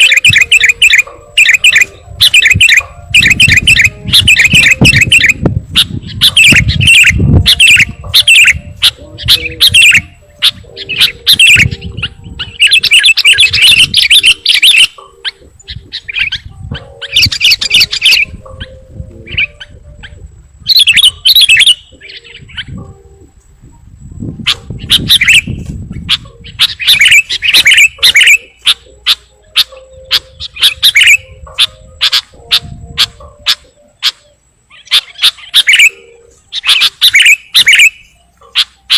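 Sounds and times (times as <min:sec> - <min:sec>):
bird chirping bursts: 0:00.0 - 0:23.3, 0:24.0 - 0:38.9.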